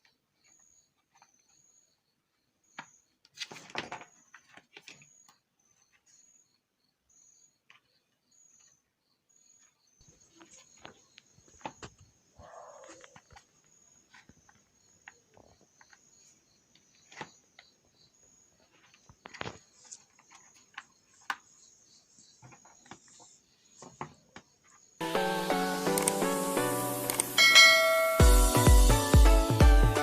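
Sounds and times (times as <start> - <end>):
music: 25.0 - 30.0.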